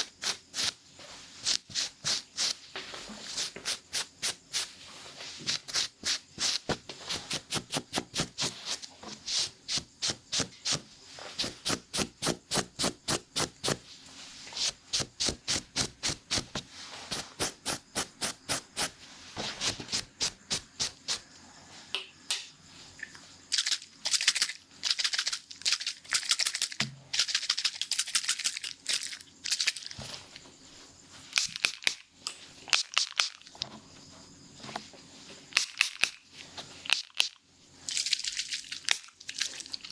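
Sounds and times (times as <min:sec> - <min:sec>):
scratchy strokes: 0:03.2 - 0:21.2.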